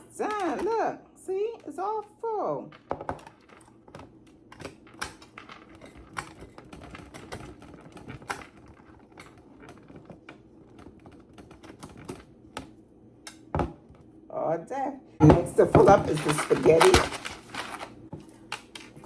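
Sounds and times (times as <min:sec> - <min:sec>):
plastic containers clicking and tapping: 0:02.7 - 0:14.0, 0:15.2 - 0:19.0.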